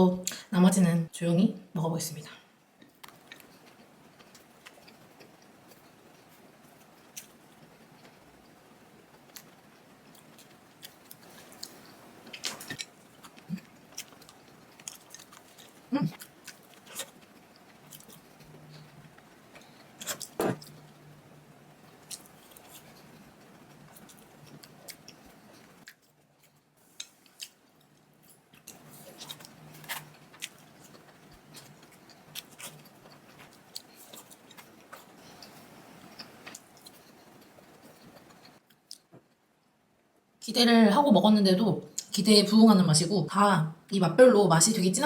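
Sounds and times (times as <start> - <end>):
faint low hum: 0.0 - 45.0
crunchy chewing: 9.2 - 20.9, 21.9 - 39.1.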